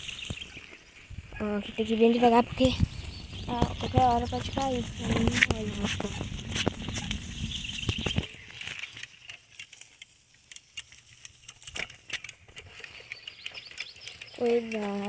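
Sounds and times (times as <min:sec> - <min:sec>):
rumble: 0:00.0 - 0:09.2
bicycle rattling and clicking: 0:01.8 - 0:15.0.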